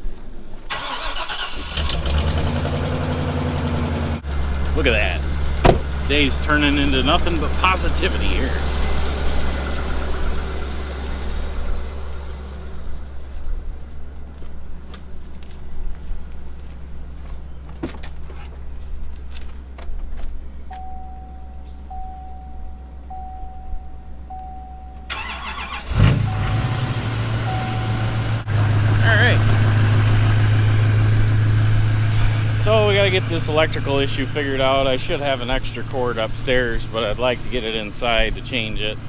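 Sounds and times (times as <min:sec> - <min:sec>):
truck engine idling: 0:00.7 - 0:39.0
chime beeping: 0:20.7 - 0:25.5, 0:27.4 - 0:28.5.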